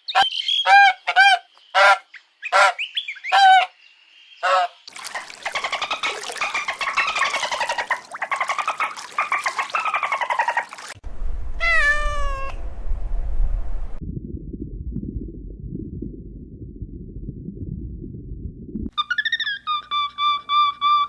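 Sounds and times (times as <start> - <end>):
rapid rattling animal call: 5.1 - 11.0
low rumble: 11.0 - 19.0
cat meowing: 11.6 - 12.6.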